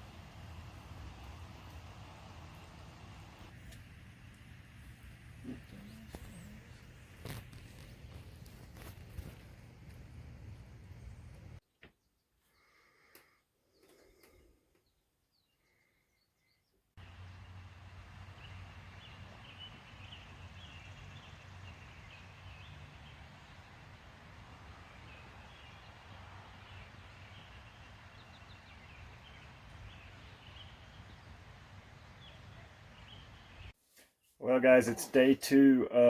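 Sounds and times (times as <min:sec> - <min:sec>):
low outdoor rumble: 0:00.0 - 0:11.6, 0:17.0 - 0:33.7
faint birdsong chirps: 0:00.0 - 0:36.0.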